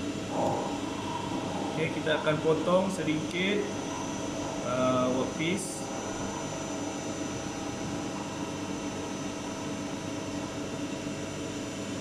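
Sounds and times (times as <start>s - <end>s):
lathe running with mechanical hum: 0.0s - 12.0s.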